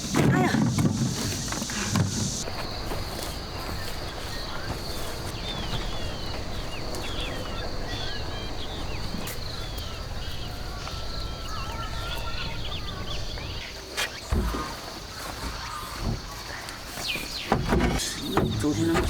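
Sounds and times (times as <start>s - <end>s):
low rustling: 0.0s - 10.8s
high insect drone: 0.0s - 16.5s
small birds chirping: 0.0s - 19.0s.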